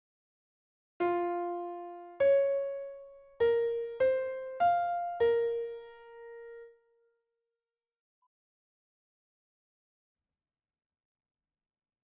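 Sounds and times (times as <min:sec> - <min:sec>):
electric piano melody: 0:01.0 - 0:06.8.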